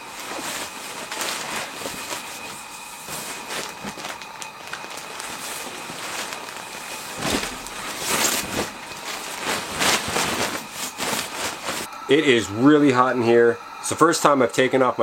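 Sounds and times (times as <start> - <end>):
rustling and shuffling: 0.0 - 11.9.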